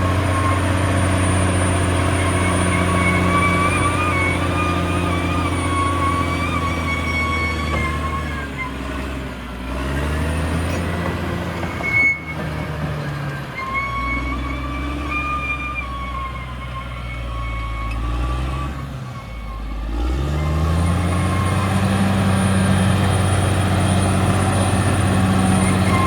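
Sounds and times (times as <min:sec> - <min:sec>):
bulldozer diesel engine: 0:00.0 - 0:26.0.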